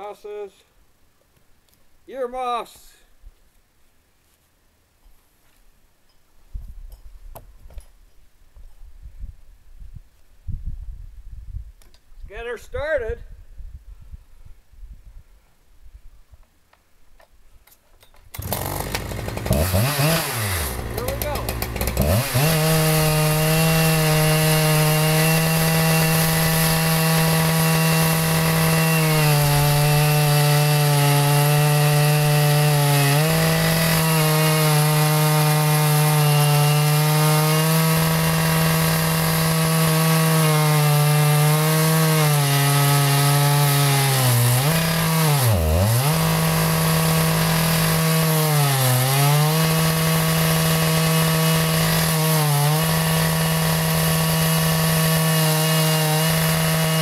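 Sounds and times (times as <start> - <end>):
chainsaw cutting log: 18.2 - 57.0.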